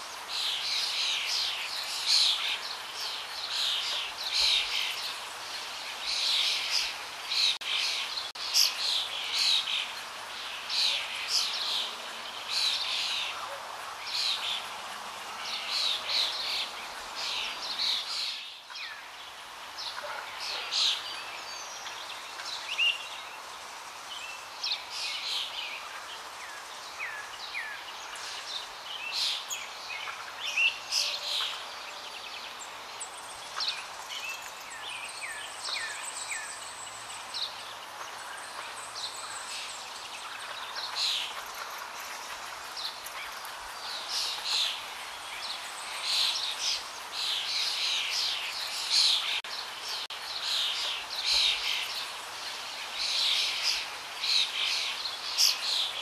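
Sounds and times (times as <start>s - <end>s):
birds chirping: 0.0s - 56.0s
steady background hiss: 0.0s - 56.0s.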